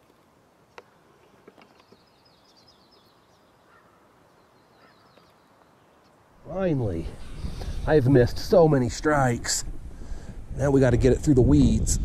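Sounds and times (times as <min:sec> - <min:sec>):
small bird twittering trill: 0:01.8 - 0:06.0.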